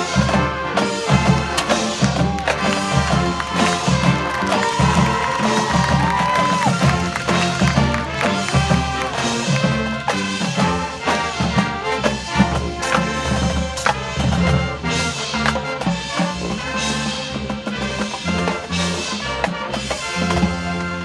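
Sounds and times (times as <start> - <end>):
steady drum beat: 0.0 - 21.0
trumpets and trombones playing chords: 0.0 - 21.0.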